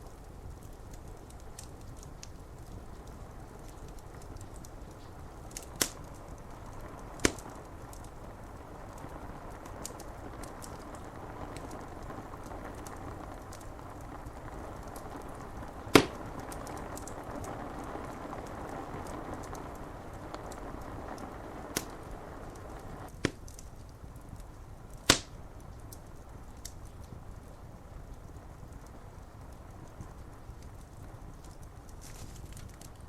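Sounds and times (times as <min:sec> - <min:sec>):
rain hissing: 0:00.0 - 0:23.5, 0:24.8 - 0:25.8
sharp fire pops: 0:00.0 - 0:27.3
wood fire crackling: 0:00.0 - 0:33.0.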